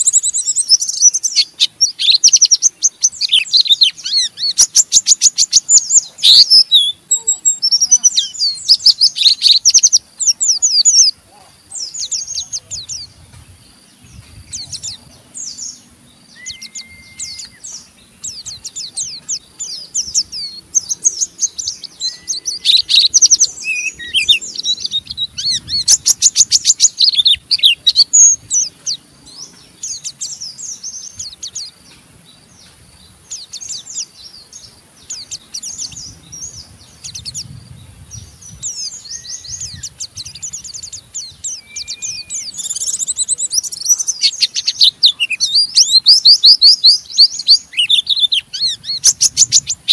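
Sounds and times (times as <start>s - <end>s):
bird chattering song: 0.0s - 49.9s
short low whistles: 16.4s - 17.6s.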